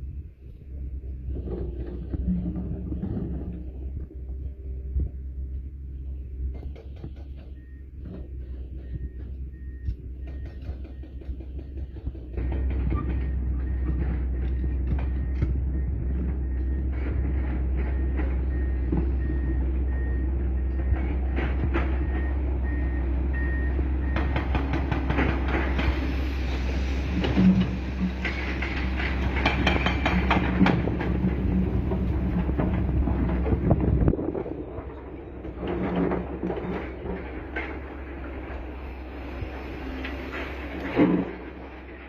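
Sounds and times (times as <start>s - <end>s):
excavator engine rumbling: 0.0s - 42.0s
metal clanks and knocks: 24.1s - 42.0s.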